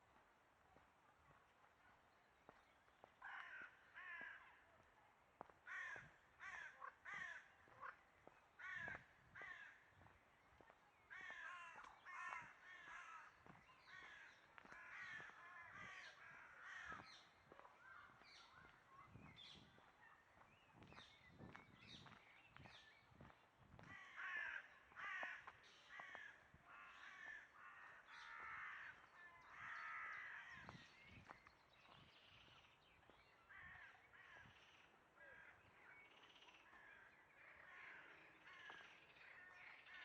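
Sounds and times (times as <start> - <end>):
faint bird calls: 23.8 - 40.0.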